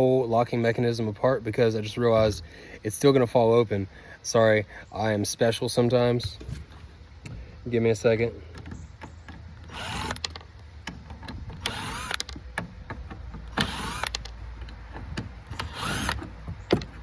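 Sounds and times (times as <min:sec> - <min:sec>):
clicks of handled parts: 0:08.5 - 0:17.0
power drill whirring: 0:09.6 - 0:10.4, 0:11.5 - 0:12.4, 0:13.5 - 0:14.3, 0:15.5 - 0:17.0.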